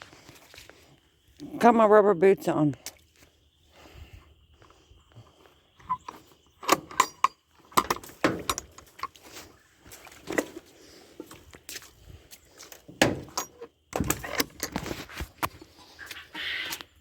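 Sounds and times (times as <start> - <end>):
metallic clinks: 6.6 - 7.5.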